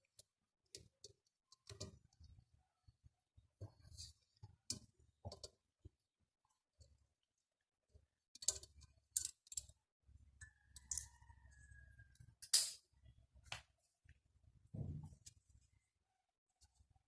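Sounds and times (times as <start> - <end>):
tools clicking and snapping: 12.4 - 12.8.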